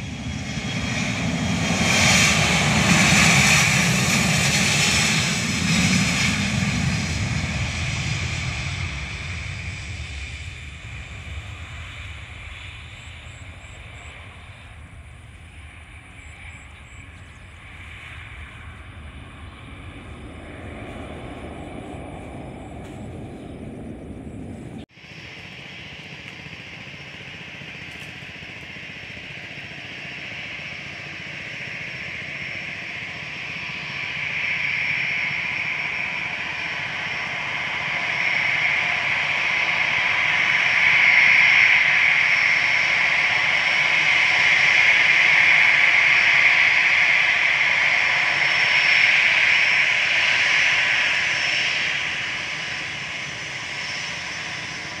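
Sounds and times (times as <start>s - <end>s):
wind rumbling on microphone: 0.0s - 24.9s
jet engines whining: 0.0s - 55.0s.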